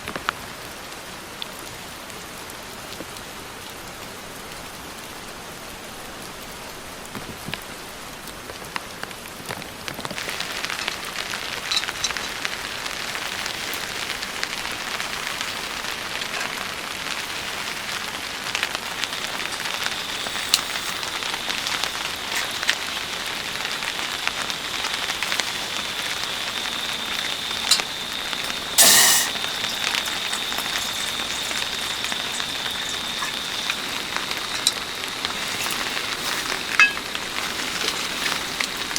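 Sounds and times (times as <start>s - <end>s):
rain falling: 0.0s - 38.9s
raindrops ticking on a surface: 0.0s - 38.9s
loud burst of noise: 18.9s - 37.4s
faint steady high tone: 19.0s - 38.9s.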